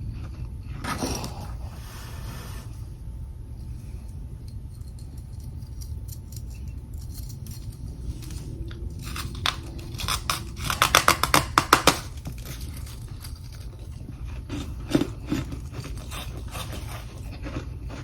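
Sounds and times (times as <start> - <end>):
low hum: 0.0 - 14.9
frost being chewed: 7.4 - 18.0.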